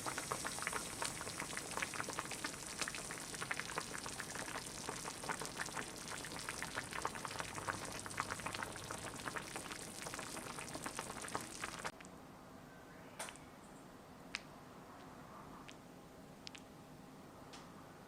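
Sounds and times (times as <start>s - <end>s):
stew bubbling and popping: 0.0s - 12.1s, 16.4s - 16.6s.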